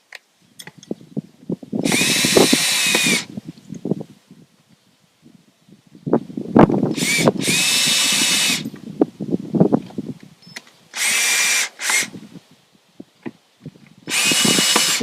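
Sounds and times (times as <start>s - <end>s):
power drill running: 1.8s - 3.3s, 6.9s - 8.7s, 11.0s - 12.1s, 14.1s - 15.0s.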